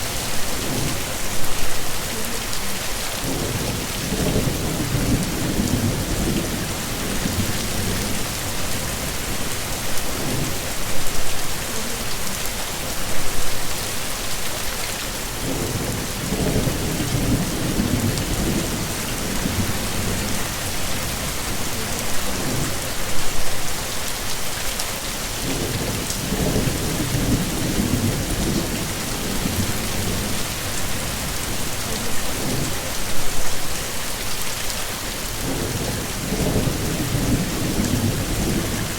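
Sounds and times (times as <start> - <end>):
heavy rain falling: 0.0 - 38.9
thunder rumbling: 3.2 - 10.8, 15.4 - 23.6, 25.4 - 33.4, 35.4 - 38.9.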